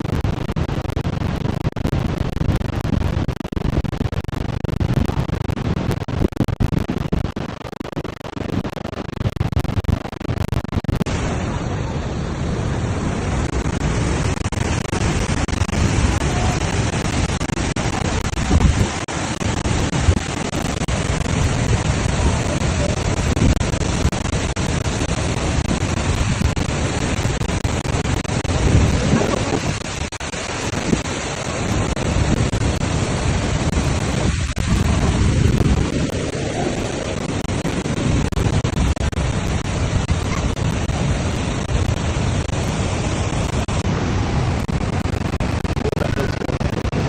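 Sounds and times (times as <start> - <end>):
waterfall roaring: 0.0 - 47.0
wind buffeting microphone: 11.0 - 47.0.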